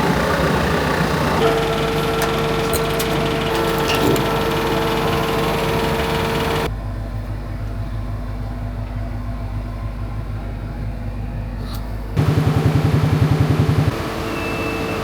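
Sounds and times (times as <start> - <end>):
engine running: 0.0 - 6.7, 12.2 - 15.0
low pulsing engine: 0.0 - 15.0.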